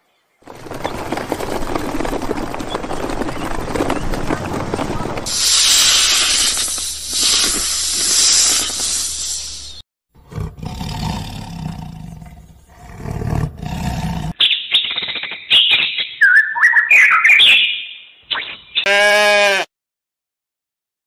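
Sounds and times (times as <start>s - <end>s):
snake hissing: 5.3s - 9.8s
cheetah growling: 10.2s - 14.4s.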